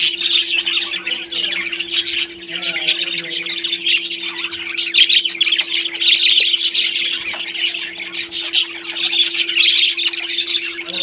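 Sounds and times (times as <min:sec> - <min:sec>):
parrots chirping and squawking: 0:00.0 - 0:11.0.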